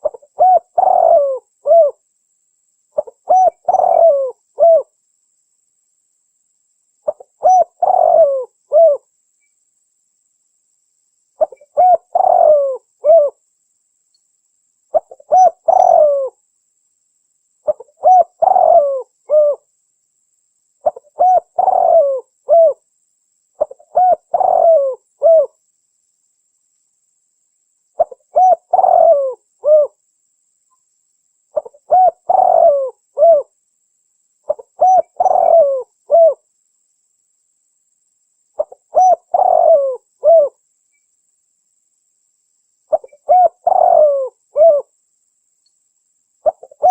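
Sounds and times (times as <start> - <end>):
dove cooing: 0.0 - 2.0, 3.0 - 4.9, 7.0 - 9.1, 11.4 - 13.4, 14.9 - 16.4, 17.7 - 19.7, 20.8 - 22.8, 23.6 - 25.6, 28.0 - 30.0, 31.6 - 33.5, 34.5 - 36.4, 38.6 - 40.6, 42.9 - 44.9, 46.4 - 46.9.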